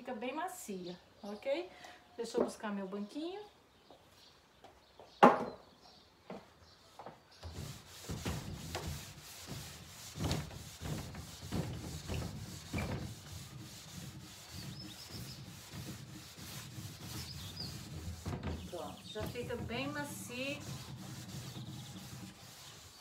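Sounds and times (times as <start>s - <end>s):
steel wool scrubbing wood: 7.4s - 23.0s.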